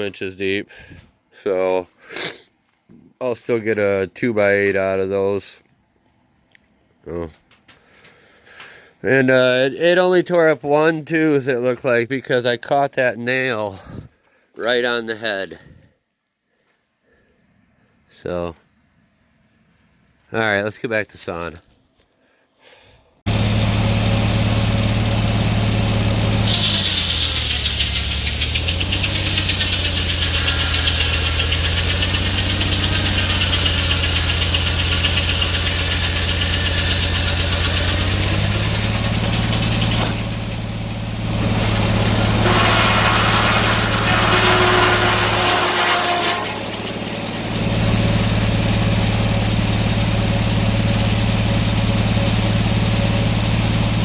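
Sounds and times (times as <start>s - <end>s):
sawmill engine running: 23.3s - 54.0s
saw blade cutting log hiss: 26.2s - 40.7s, 41.3s - 47.3s.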